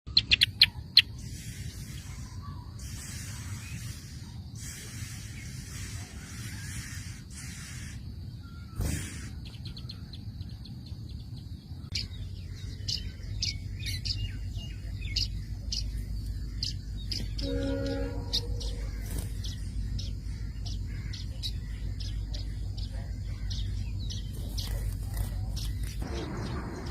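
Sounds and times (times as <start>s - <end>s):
high bird chirps: 0.1s - 26.9s
hissing bursts: 1.2s - 8.0s, 8.8s - 9.4s
steady low rumble: 9.8s - 26.9s.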